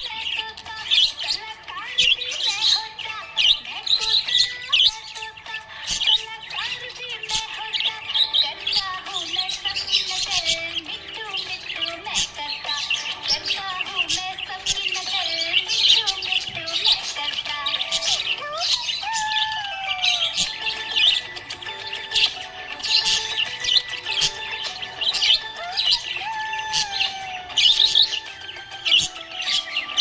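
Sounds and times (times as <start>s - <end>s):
budgerigars chirping: 0.0s - 30.0s.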